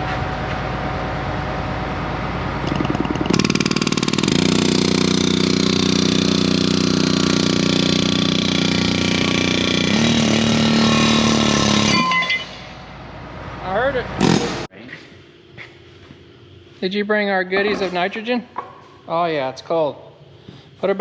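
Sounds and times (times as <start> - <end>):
engine starting and running: 0.1 - 12.8.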